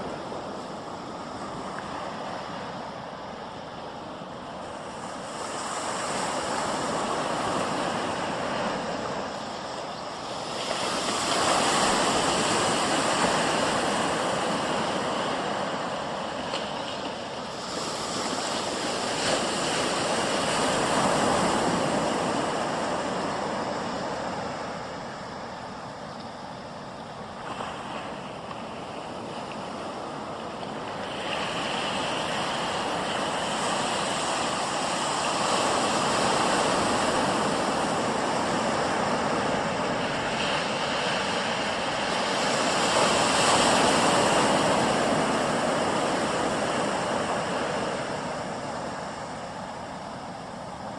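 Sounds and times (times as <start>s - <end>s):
high turbine whine: 0.0s - 50.9s.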